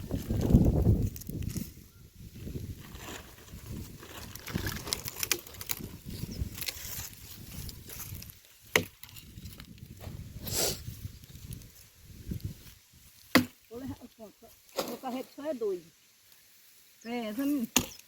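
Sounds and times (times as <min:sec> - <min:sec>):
dry branches crackling and snapping: 0:00.0 - 0:01.8, 0:02.4 - 0:10.1, 0:11.2 - 0:15.3.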